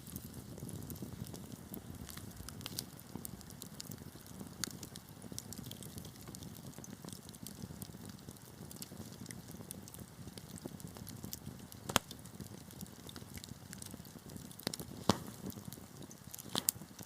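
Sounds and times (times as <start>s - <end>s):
wood fire crackling: 0.0s - 17.0s
loud sharp pop: 11.9s - 12.1s, 15.0s - 15.4s.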